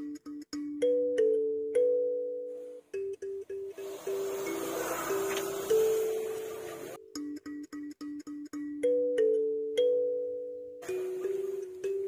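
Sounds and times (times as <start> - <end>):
light melodic background music: 0.0 - 12.0.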